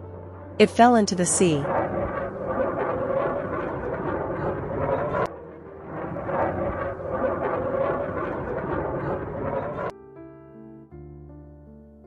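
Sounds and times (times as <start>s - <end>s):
fighter jet rushing: 1.6s - 9.9s.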